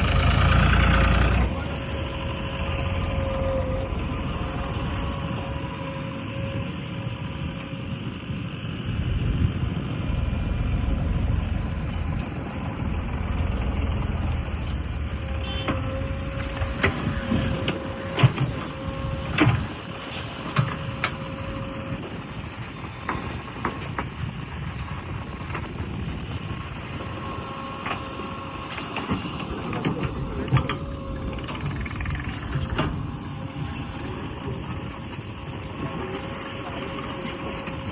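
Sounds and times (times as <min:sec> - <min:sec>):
diesel engine running: 0:00.0 - 0:37.9
steady whine: 0:00.0 - 0:37.9.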